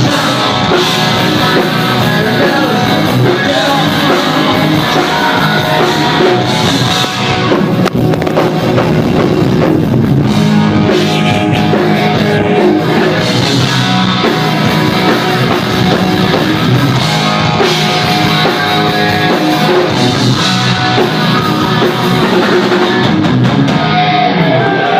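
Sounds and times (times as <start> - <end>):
drums: 0.0 - 24.9
electric guitar: 0.0 - 24.9
loud rock music: 0.0 - 24.9.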